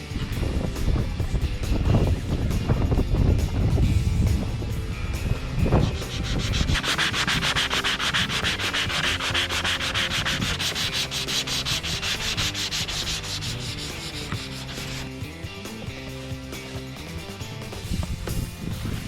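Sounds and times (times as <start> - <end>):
sandpaper rubbing on body filler: 5.7 - 15.1.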